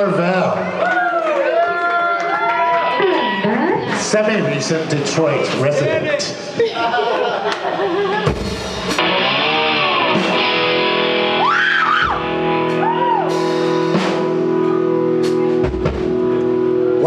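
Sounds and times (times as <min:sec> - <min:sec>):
drum hits: 0:08.2 - 0:09.2, 0:12.0 - 0:14.6, 0:15.2 - 0:16.3
electric guitar ringing chord: 0:08.5 - 0:17.0.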